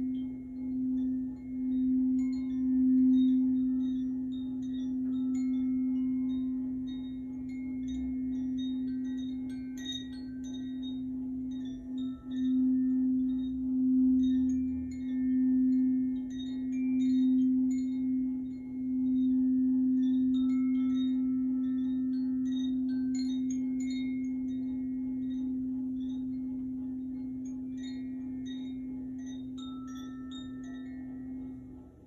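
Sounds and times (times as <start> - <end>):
faint high ringing notes: 0.0 - 32.0
singing bowl low note: 0.0 - 32.0.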